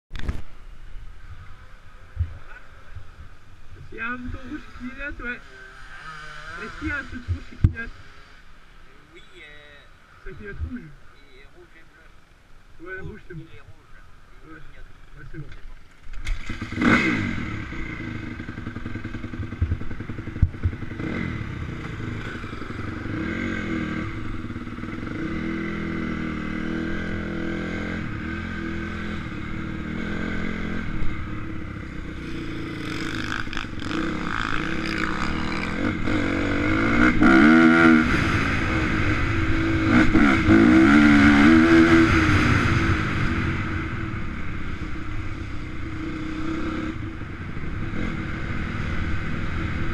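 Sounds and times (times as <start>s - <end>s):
motocross bike revving: 3.8s - 8.8s, 16.2s - 49.9s.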